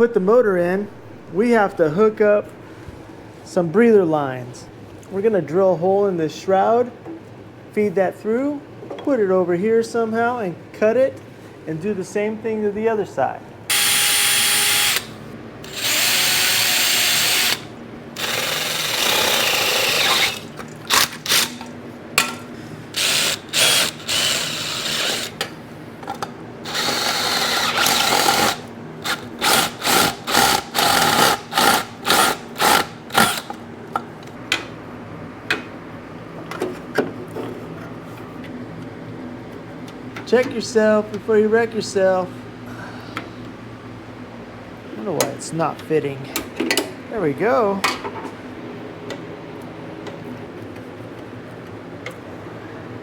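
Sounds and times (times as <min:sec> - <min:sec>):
power drill boring metal: 0:13.7 - 0:21.7, 0:22.9 - 0:25.4, 0:26.7 - 0:33.5.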